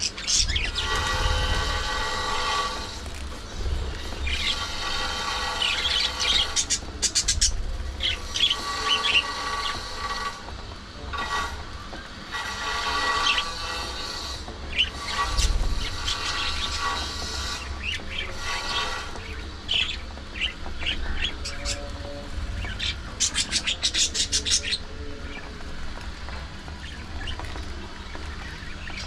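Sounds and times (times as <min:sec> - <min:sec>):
steady low rumble: 0:00.0 - 0:08.4.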